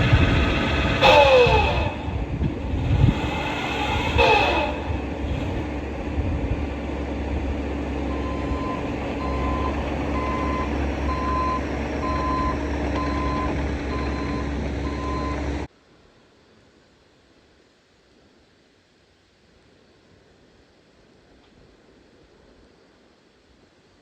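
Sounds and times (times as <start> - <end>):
mini excavator diesel engine running: 0.0 - 15.7
brief squeal: 0.9 - 2.2, 3.0 - 5.6
travel alarm beeping: 8.1 - 15.4.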